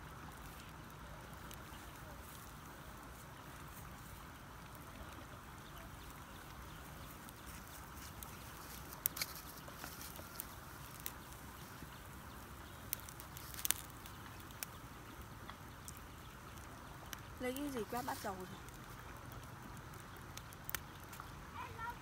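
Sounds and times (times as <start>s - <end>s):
faint outdoor background noise: 0.0s - 22.0s
sharp crackles or clicks: 4.6s - 22.0s.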